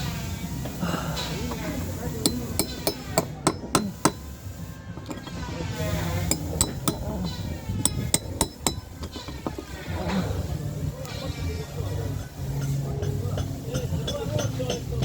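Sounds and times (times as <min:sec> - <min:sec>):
hammer on metal caulking iron: 0:01.5 - 0:04.3, 0:06.2 - 0:09.7.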